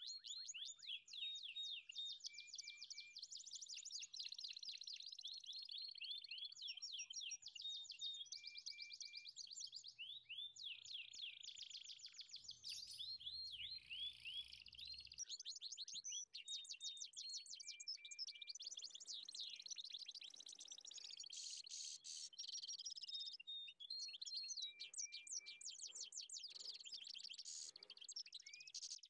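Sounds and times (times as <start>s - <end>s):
bird chirping and trilling: 12.0s - 15.2s.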